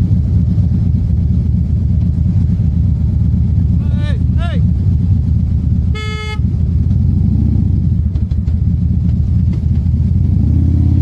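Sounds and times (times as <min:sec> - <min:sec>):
motorcycle engine running: 0:00.0 - 0:11.0
vehicle horn beep: 0:05.9 - 0:06.5.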